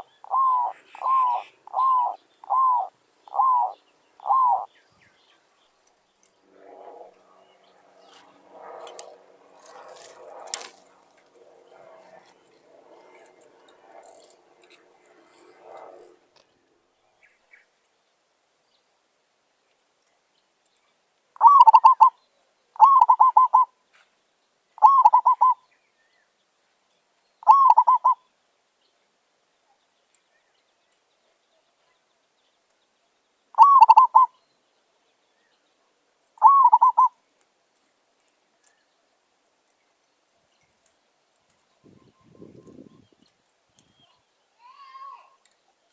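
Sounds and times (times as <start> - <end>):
dove cooing: 0.0 - 4.7, 21.4 - 22.1, 22.8 - 23.7, 24.8 - 25.6, 27.4 - 28.2, 33.6 - 34.3, 36.4 - 37.1.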